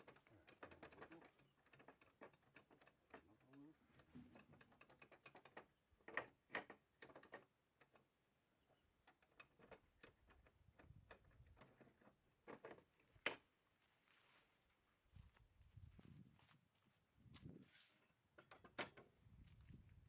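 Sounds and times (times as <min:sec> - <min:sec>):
faint clicks and knocks: 0:00.0 - 0:13.8, 0:18.2 - 0:20.0.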